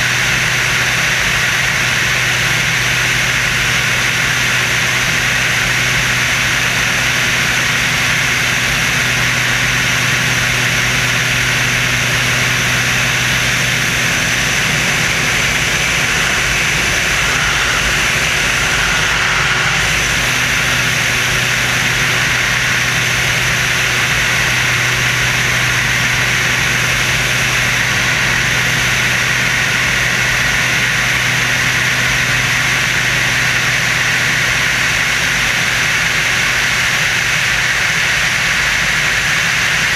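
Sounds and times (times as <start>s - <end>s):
aircraft engines droning: 0.0s - 39.9s
rush of air noise: 6.3s - 31.9s.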